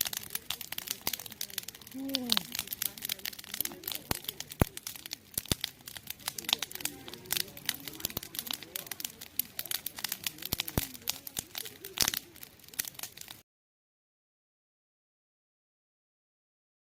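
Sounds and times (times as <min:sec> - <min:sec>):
campfire crackling and popping: 0:00.0 - 0:13.4.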